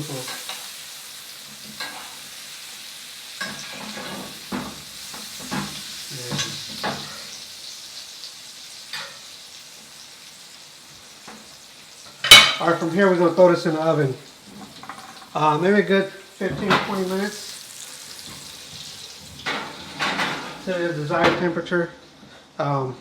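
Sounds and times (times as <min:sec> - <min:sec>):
steaks sizzling in a pan: 0:00.0 - 0:21.2.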